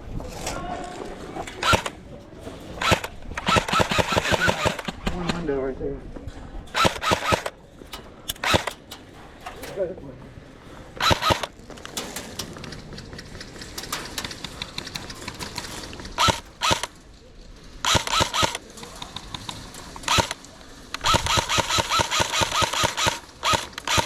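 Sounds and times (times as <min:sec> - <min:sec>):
airsoft guns firing: 0:01.6 - 0:02.0, 0:02.8 - 0:05.4, 0:06.7 - 0:08.9, 0:11.0 - 0:17.0, 0:17.8 - 0:24.0.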